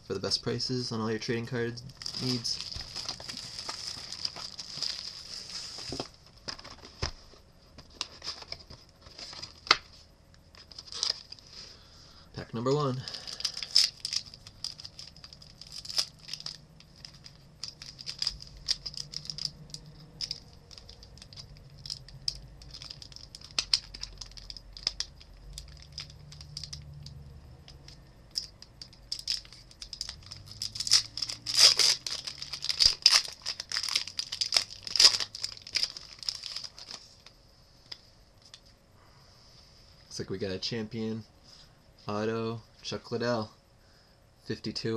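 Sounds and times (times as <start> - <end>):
wrapper crinkling and tearing: 1.8 - 6.1, 10.6 - 11.5, 12.8 - 27.2, 27.8 - 37.4.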